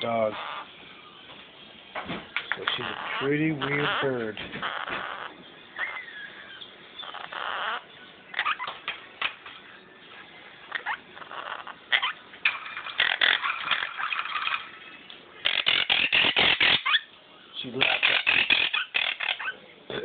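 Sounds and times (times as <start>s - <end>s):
bird squawking: 0.0s - 0.8s, 2.6s - 8.8s, 10.7s - 12.2s, 12.8s - 14.8s, 15.4s - 17.1s, 17.8s - 19.6s.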